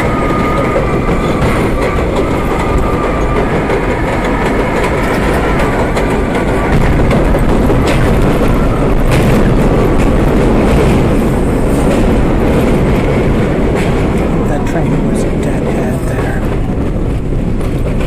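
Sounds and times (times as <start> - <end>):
steel wheels rumbling on rail: 0.0 - 18.0
wheels clicking over rail joints: 0.0 - 18.0.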